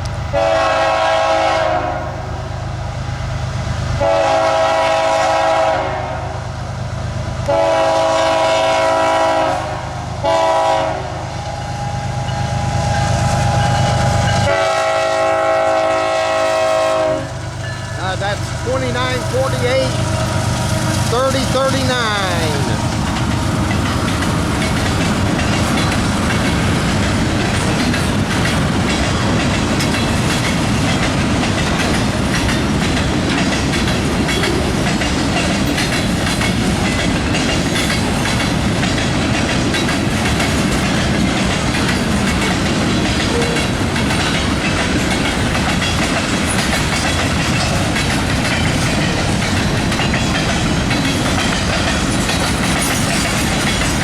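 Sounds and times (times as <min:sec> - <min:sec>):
train wheels clattering over rails: 0:11.6 - 0:54.0.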